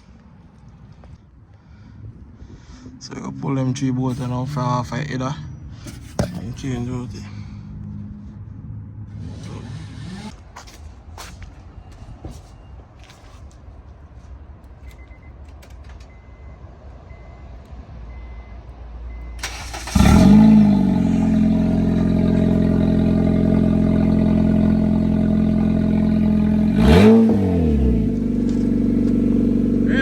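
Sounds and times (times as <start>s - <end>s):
car engine starting and idling: 14.7s - 30.0s.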